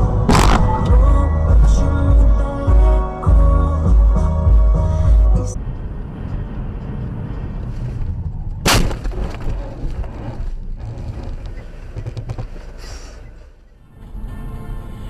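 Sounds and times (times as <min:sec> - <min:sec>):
engine and road rumble: 0:00.0 - 0:15.0
vehicle collision bang: 0:00.2 - 0:01.0, 0:08.6 - 0:09.8.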